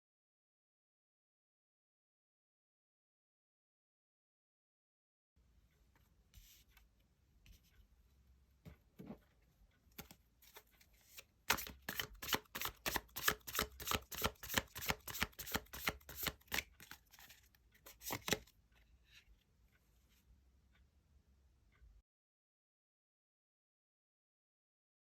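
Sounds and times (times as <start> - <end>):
cards being shuffled: 10.0 - 18.5.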